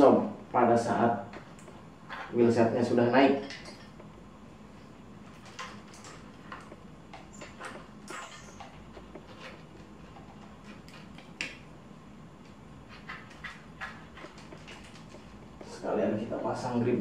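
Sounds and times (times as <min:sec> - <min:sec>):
tools clicking and tapping: 0:03.4 - 0:04.2, 0:05.3 - 0:11.6.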